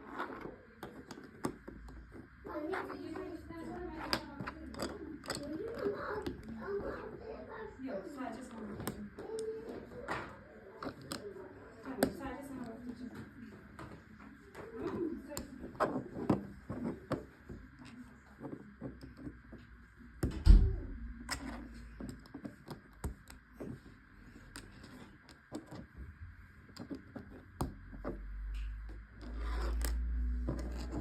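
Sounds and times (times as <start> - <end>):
plastic parts clicking: 4.0 - 6.6.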